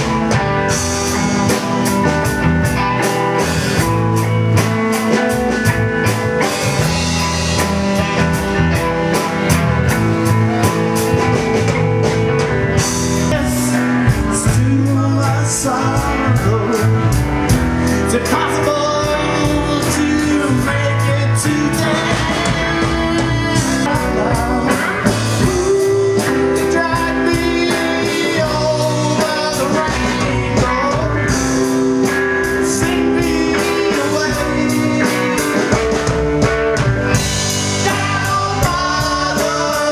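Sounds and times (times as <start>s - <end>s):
live rockabilly blues band: 0.0s - 39.9s.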